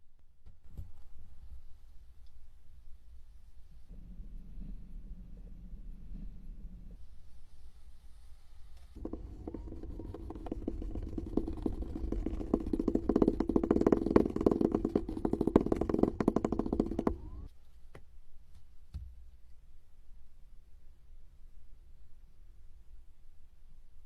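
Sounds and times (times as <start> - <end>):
steady low hum: 3.2 - 8.1, 9.0 - 17.5.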